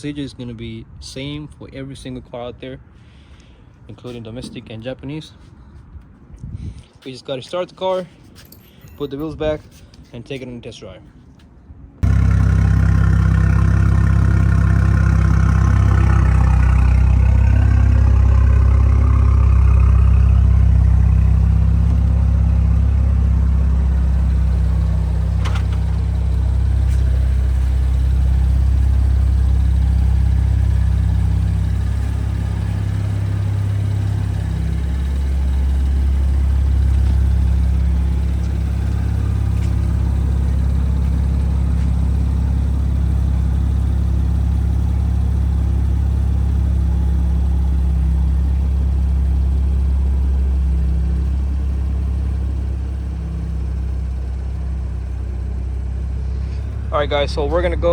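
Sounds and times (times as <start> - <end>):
car engine idling: 12.0 - 57.9.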